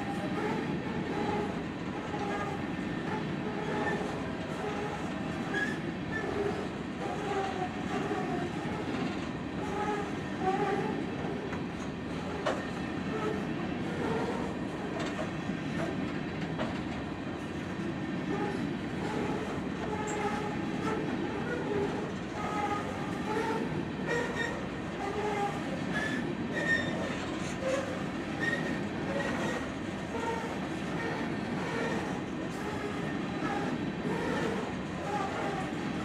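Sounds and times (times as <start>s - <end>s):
train wheels rumbling over rail: 0.0s - 36.0s
wheel squeals: 3.5s - 8.8s, 18.3s - 35.6s.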